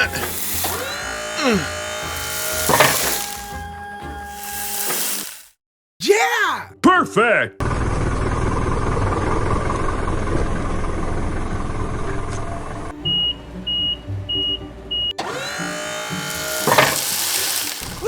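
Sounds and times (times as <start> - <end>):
sliding tones: 0.0 - 5.5, 15.2 - 18.0
reversing alarm beeping: 13.0 - 17.0.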